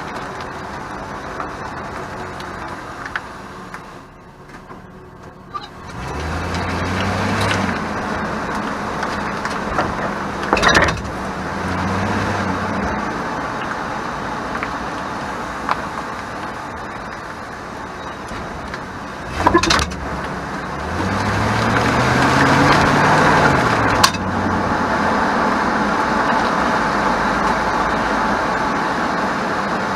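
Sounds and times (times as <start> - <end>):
pickup truck driving: 0.0 - 29.9
rattling clatter from rear: 5.7 - 11.4, 18.1 - 20.4.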